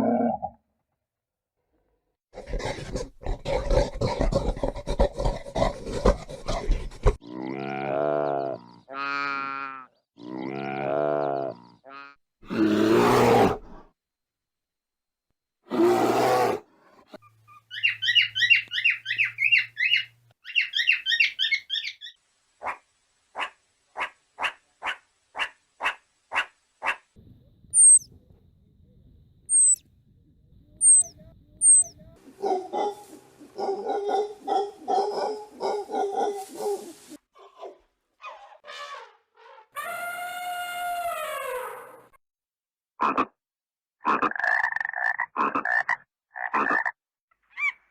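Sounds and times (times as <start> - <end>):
animal calls: 27.7 - 28.1, 29.5 - 29.8, 30.8 - 42.0
high chirping trills: 27.7 - 28.1, 29.5 - 29.8, 30.7 - 32.2
short high chirps: 27.8 - 28.1, 29.5 - 29.8, 30.8 - 32.0.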